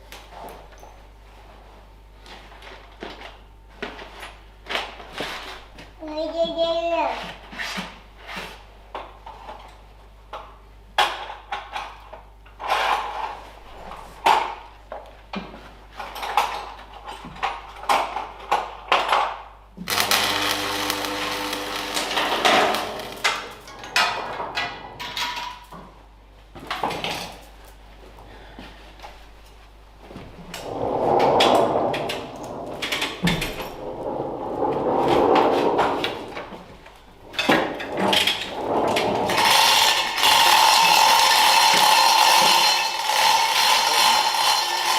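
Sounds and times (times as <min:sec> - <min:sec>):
small motor running: 0:19.9 - 0:22.4.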